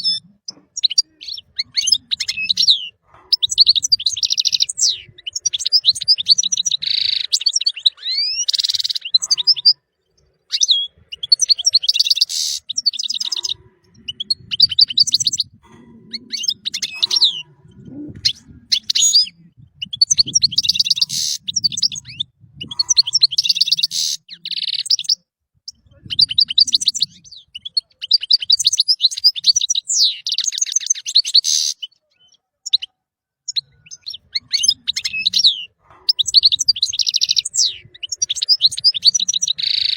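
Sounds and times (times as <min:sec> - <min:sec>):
goldfinch twittering and trilling: 0:10.4 - 0:25.2, 0:33.5 - 0:39.9.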